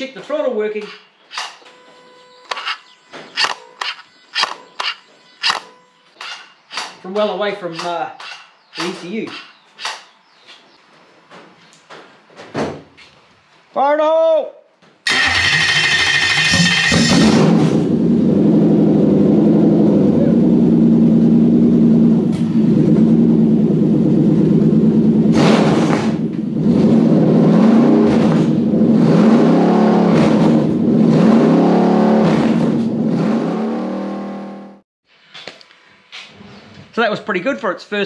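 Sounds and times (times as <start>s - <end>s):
engine revving: 15.1s - 34.8s.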